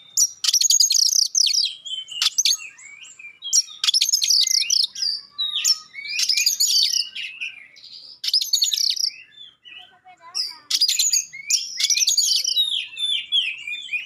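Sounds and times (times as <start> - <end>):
bird singing varied song: 0.0 - 14.0.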